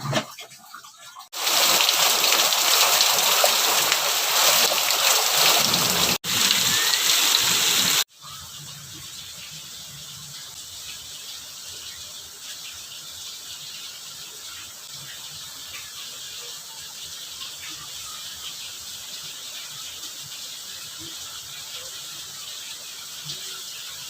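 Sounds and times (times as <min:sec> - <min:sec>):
food sizzling in hot oil: 0:01.3 - 0:08.5.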